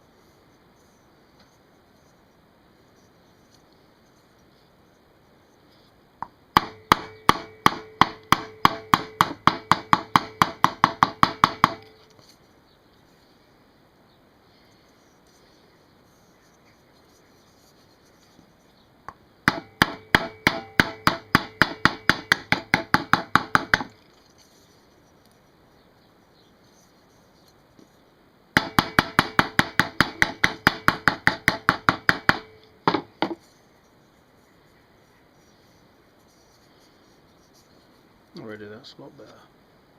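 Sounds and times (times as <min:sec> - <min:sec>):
hammer tapping on metal tank: 0:06.6 - 0:11.9, 0:19.5 - 0:23.9, 0:28.6 - 0:33.4.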